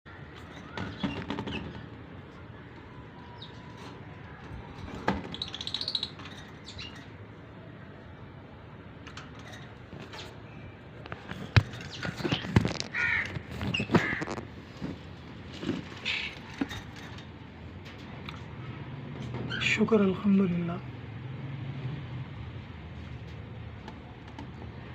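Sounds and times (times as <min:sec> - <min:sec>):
bird chirps: 0:05.3 - 0:07.0.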